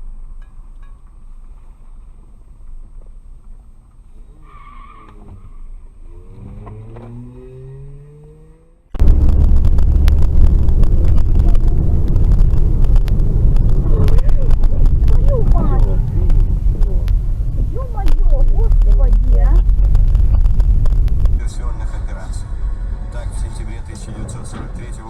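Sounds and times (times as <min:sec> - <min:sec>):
road and wind noise in car: 0:00.0 - 0:25.0
vehicle engine revving up: 0:05.2 - 0:24.0.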